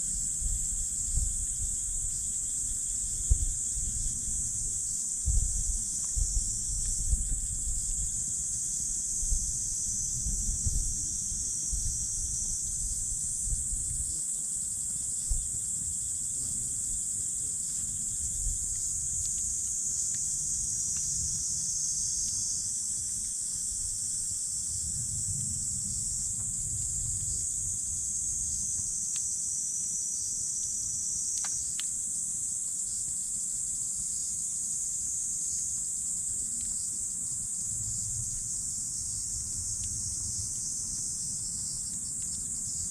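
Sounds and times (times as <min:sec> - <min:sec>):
wind rumble on microphone: 0:00.0 - 0:29.0, 0:36.3 - 0:42.9
crickets chirring: 0:00.0 - 0:42.9
campfire popping: 0:18.0 - 0:21.2, 0:31.3 - 0:32.0.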